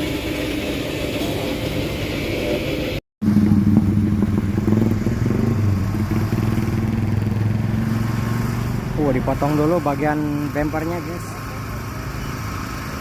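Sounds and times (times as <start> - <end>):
heavy truck engine running: 0.0 - 13.0.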